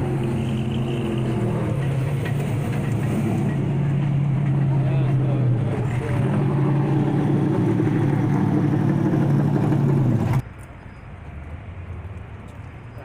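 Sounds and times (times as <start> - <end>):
car engine running: 0.0 - 10.4.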